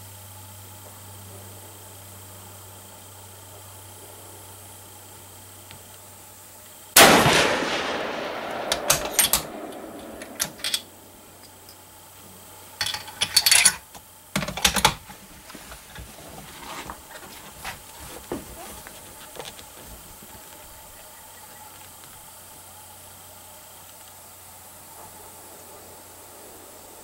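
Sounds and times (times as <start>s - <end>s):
rifle shot: 7.0s - 11.2s
rifle bolt clicking and rattling: 8.5s - 11.8s, 12.8s - 15.1s.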